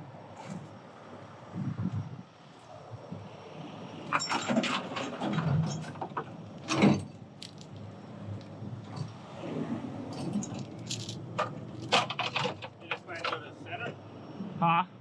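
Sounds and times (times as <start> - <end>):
metal chains clinking and rattling: 4.1 - 5.9, 6.7 - 8.5, 10.2 - 13.2.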